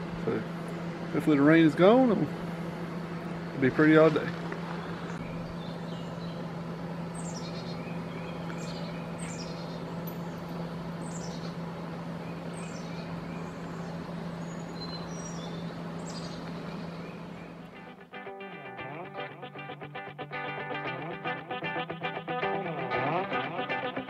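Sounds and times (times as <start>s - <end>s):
steady low hum: 0.0s - 24.0s
guitar music: 17.7s - 24.0s.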